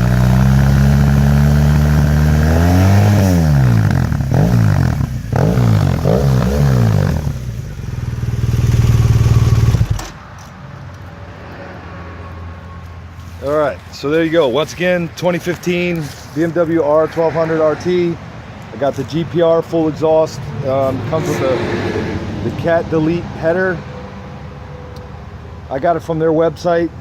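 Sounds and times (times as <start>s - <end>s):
motorcycle engine revving: 0.0s - 10.2s.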